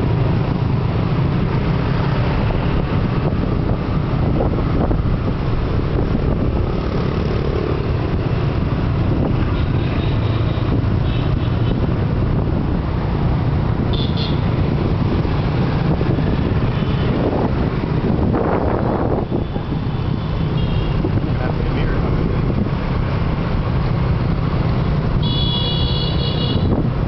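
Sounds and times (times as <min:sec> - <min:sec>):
motorbike engine and road noise: 0:00.0 - 0:27.0
horn toots: 0:13.9 - 0:14.4, 0:25.2 - 0:26.8.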